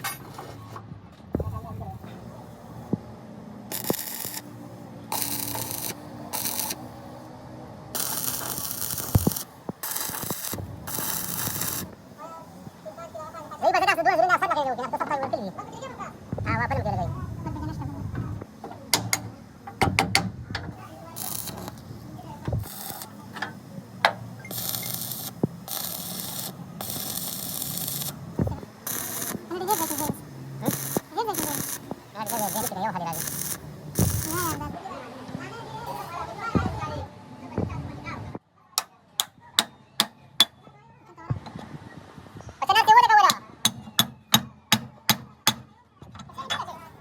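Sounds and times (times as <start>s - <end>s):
compressed-air tool hissing: 3.7s - 7.2s, 8.0s - 12.1s, 21.1s - 34.7s
sharp metal knocks: 43.3s - 45.7s.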